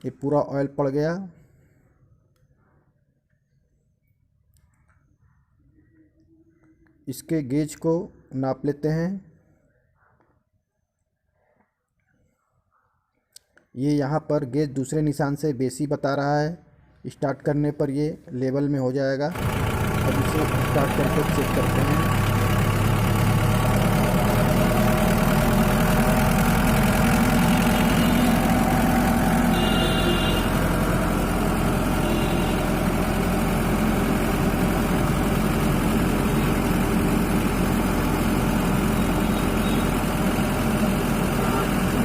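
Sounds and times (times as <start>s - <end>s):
diesel engine idling: 19.3s - 42.0s.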